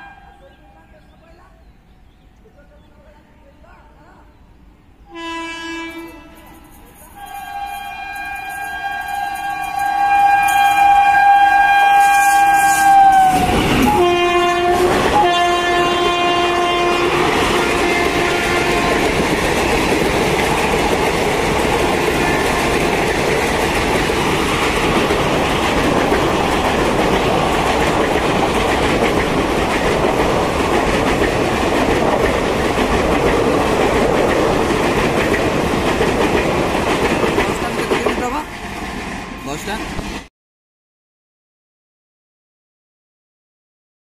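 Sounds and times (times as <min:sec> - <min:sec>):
train coaches rumbling past: 0:00.0 - 0:40.3
locomotive horn blasts: 0:05.1 - 0:19.3
wheels clacking over rail joints: 0:12.0 - 0:40.3.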